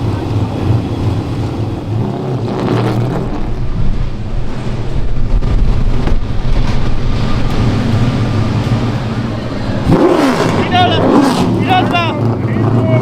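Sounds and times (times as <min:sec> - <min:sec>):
car engine running: 0:00.0 - 0:13.0
wind noise on microphone: 0:02.4 - 0:10.6.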